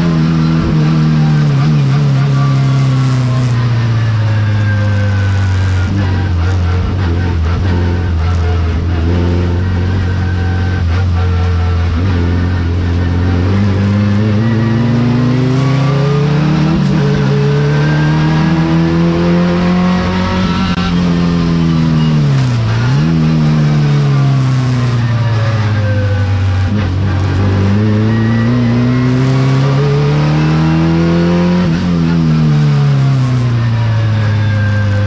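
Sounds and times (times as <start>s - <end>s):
race car engine under load: 0.0s - 35.0s.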